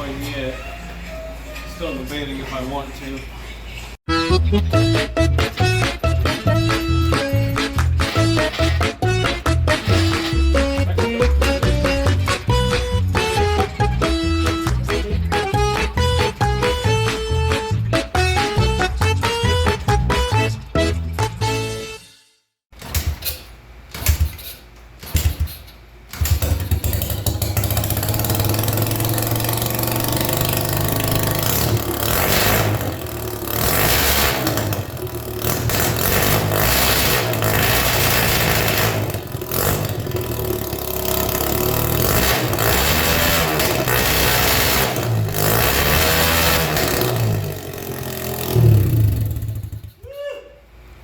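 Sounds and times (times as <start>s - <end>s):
dirt bike engine starting and revving: 4.1s - 20.9s, 26.1s - 50.0s.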